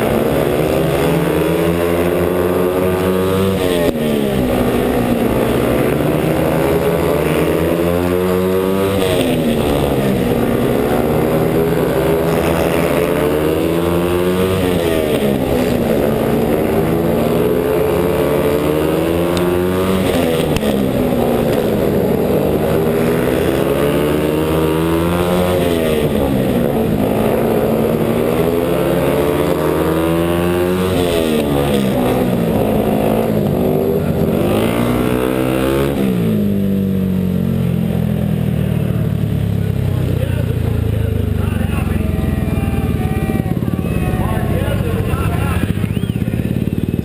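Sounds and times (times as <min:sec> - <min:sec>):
motorcycle engine racing: 0:00.0 - 0:47.0.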